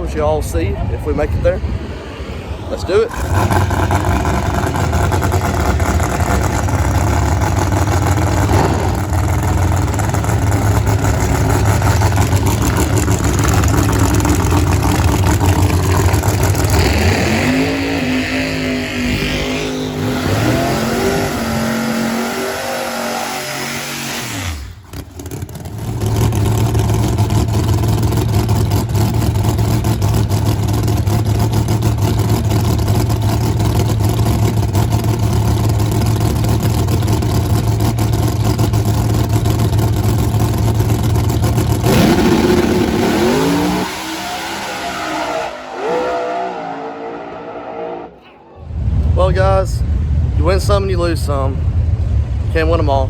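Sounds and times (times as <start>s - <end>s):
drag race car engines revving: 0.0s - 53.0s.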